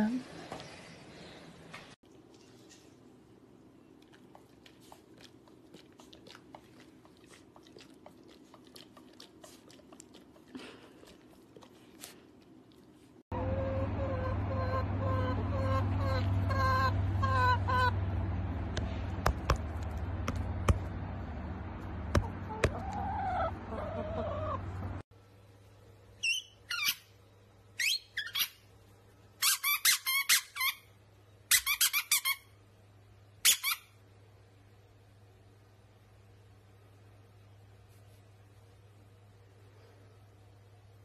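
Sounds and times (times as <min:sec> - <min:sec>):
hens clucking: 0:13.4 - 0:18.1, 0:22.2 - 0:25.0
squeaky toy ball squeaking: 0:26.2 - 0:27.1, 0:27.8 - 0:28.6, 0:29.4 - 0:30.9, 0:31.5 - 0:32.5, 0:33.4 - 0:33.9.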